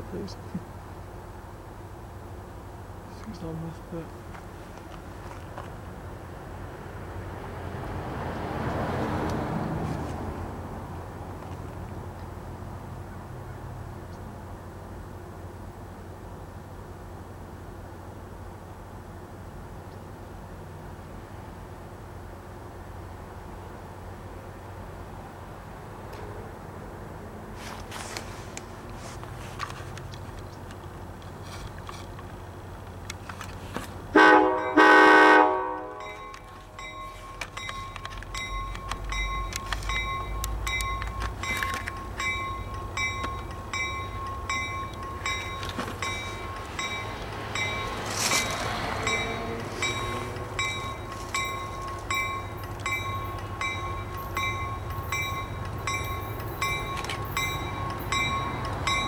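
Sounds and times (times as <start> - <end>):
train running clatter: 0.0 - 26.9, 27.5 - 59.0
train horn blast: 34.1 - 36.3.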